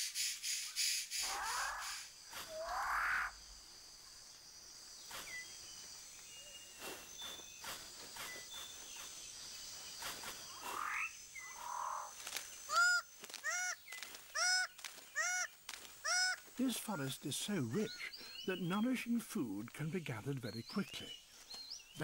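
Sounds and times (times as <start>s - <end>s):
bird calling loudly: 0.7s - 3.4s, 10.4s - 18.7s.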